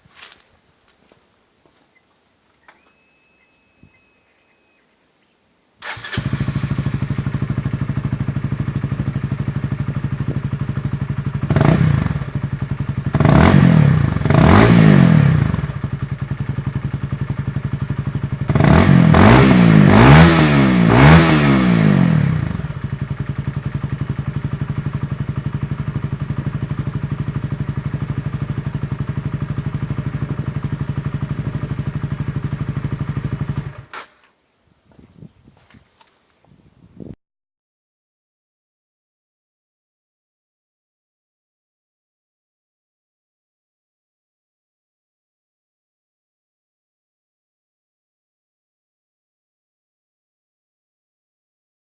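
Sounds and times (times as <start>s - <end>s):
motorcycle engine idling and revving: 5.8s - 34.1s.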